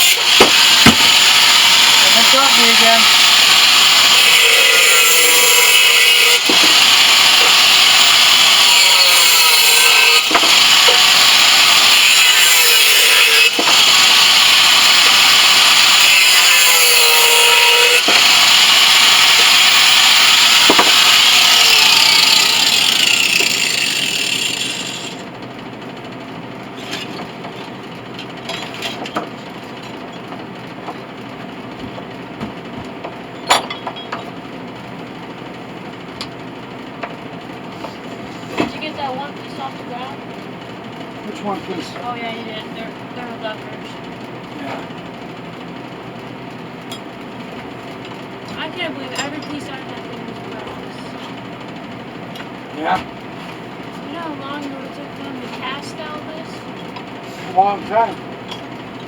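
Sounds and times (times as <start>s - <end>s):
power tool running: 0.0s - 25.4s.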